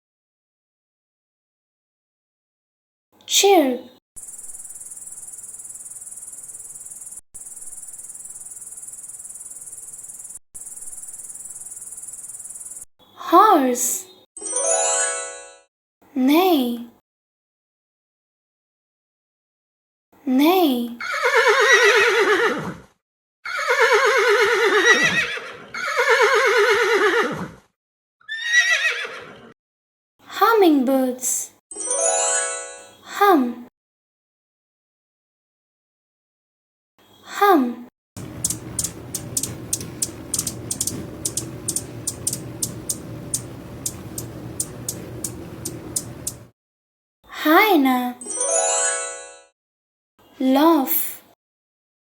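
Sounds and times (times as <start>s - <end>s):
grasshopper chirping: 4.2s - 12.9s, 38.2s - 46.5s
horse whinnying: 21.0s - 22.9s, 23.5s - 27.6s, 28.3s - 29.5s.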